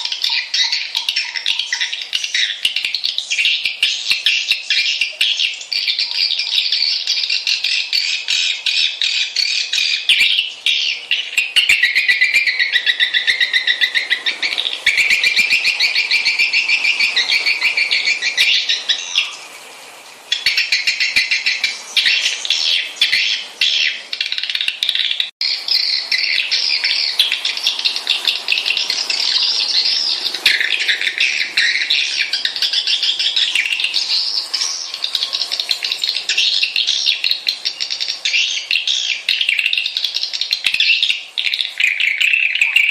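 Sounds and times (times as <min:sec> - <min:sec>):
swiftlets twittering: 0:09.4 - 0:19.6, 0:20.2 - 0:42.9.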